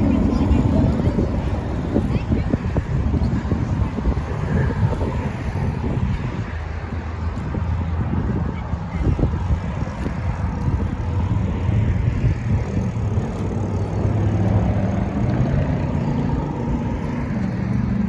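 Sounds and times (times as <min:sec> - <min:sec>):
engine drone: 0:00.0 - 0:07.0, 0:09.8 - 0:18.0
wind rumble on microphone: 0:00.0 - 0:18.0.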